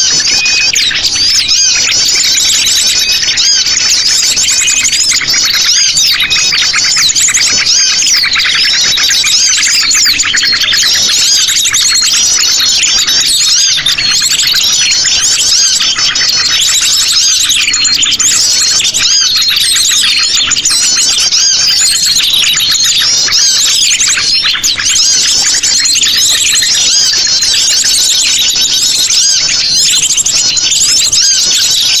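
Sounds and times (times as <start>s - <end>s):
birds chirping and trilling: 0.0s - 32.0s.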